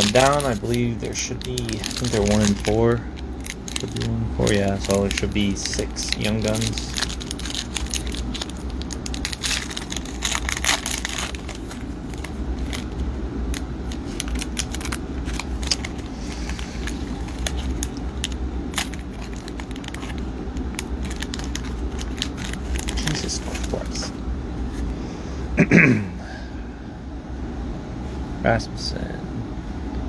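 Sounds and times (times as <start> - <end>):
wrappers torn and crinkled: 0.0 - 24.1
cards being handled: 0.0 - 25.0
steady low hum: 0.0 - 30.0.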